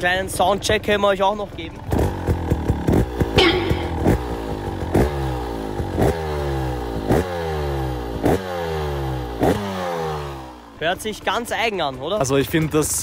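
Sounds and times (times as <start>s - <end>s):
two-stroke engine revving: 1.8s - 11.0s.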